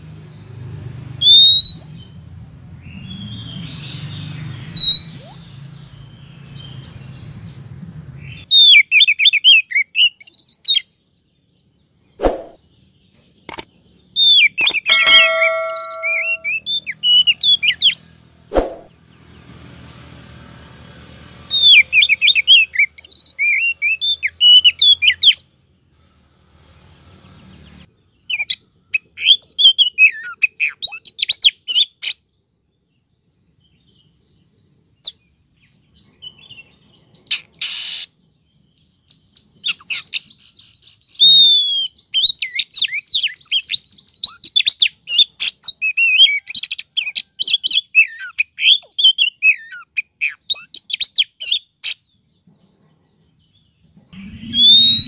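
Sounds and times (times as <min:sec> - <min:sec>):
bird singing whistled phrases: 0:04.8 - 0:05.4, 0:39.7 - 0:45.2, 0:54.2 - 0:55.0
harsh noisy bird note: 0:12.2 - 0:12.6, 0:14.6 - 0:16.6, 0:54.2 - 0:55.0.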